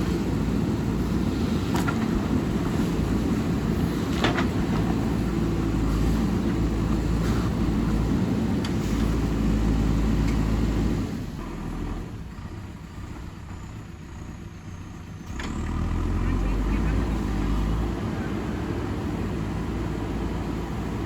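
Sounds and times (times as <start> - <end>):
backhoe diesel engine rumbling: 0.0 - 21.0.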